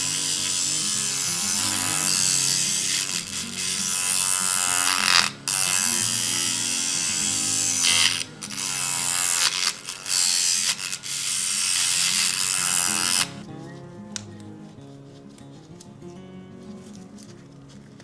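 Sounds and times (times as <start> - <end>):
harsh metal grinding tool: 0.0 - 13.4.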